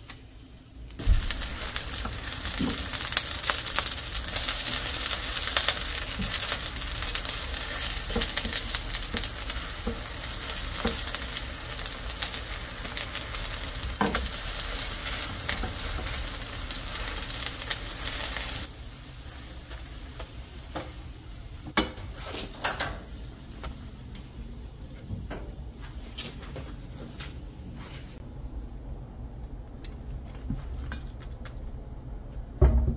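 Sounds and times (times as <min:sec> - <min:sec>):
batter sizzling in oil: 0:00.0 - 0:24.8.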